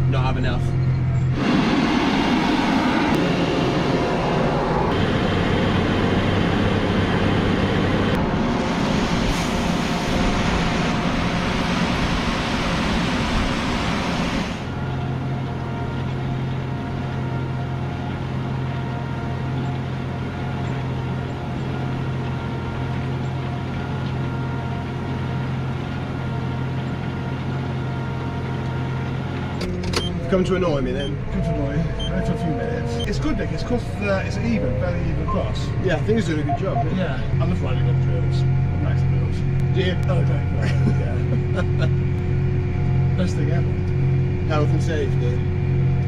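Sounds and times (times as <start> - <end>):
steady engine hum: 0.0 - 46.0
tractor engine under load: 14.4 - 31.0.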